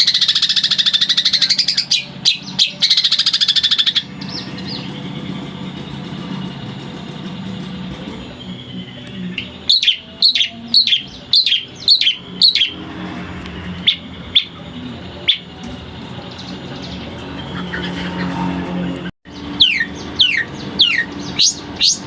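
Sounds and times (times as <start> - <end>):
steady low hum: 0.0 - 22.0
bird singing sharp notes: 8.2 - 12.9, 19.3 - 22.0.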